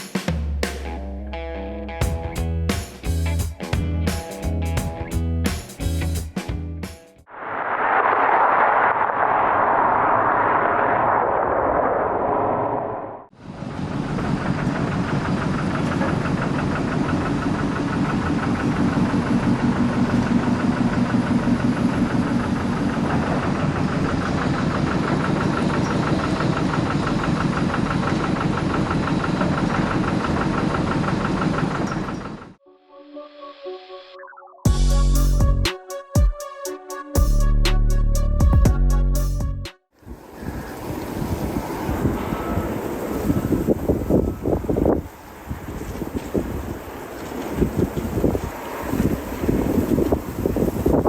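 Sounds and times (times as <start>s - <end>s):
rushing noise: 7.3s - 15.6s
engine running with fast pulse: 13.8s - 32.6s.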